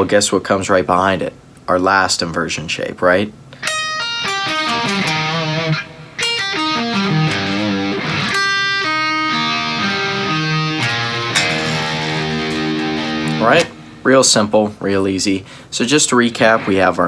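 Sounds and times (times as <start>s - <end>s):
electric guitar arpeggio: 3.6s - 14.1s.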